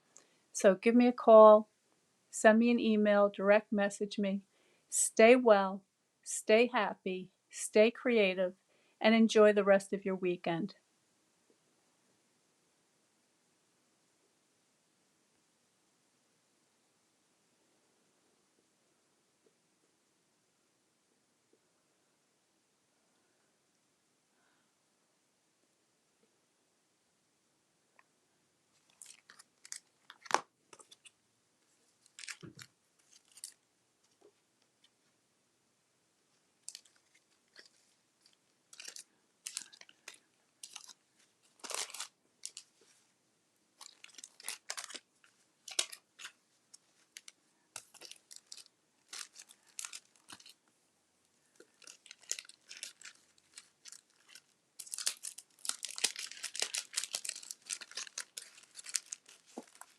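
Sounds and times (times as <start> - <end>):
crinkly material rustling: 28.7 - 35.2, 36.3 - 59.9.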